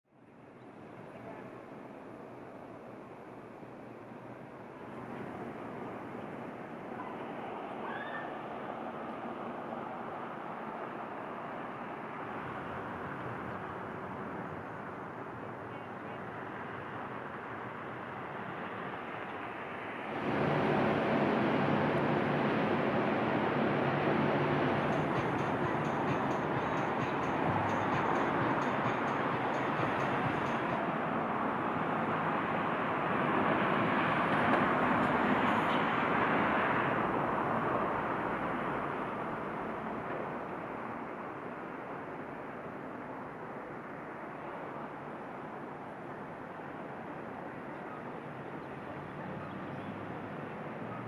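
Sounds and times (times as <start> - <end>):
street traffic noise: 0.1 - 51.0
vehicle passing: 18.0 - 39.9.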